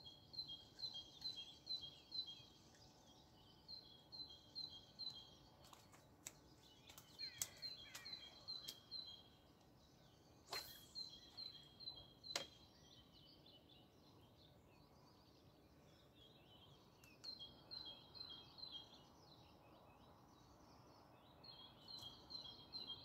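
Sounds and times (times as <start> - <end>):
sharp clicks and taps: 5.7 - 8.8.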